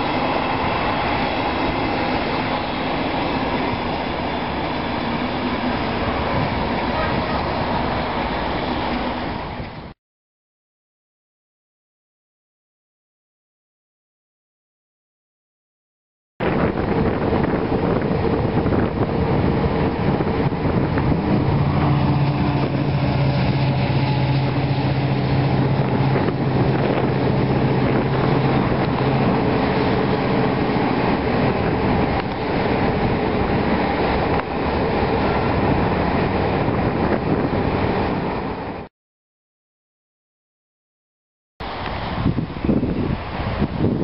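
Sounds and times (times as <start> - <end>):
train wheels rumbling and clattering: 16.4 - 38.8.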